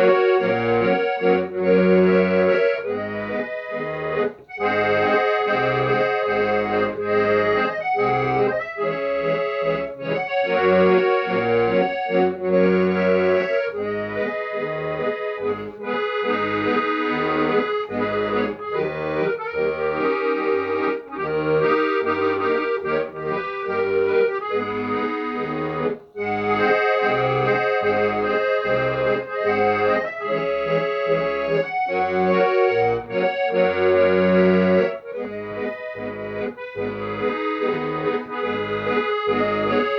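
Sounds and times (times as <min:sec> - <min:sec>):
accordion playing a tune: 0:00.0 - 0:39.9.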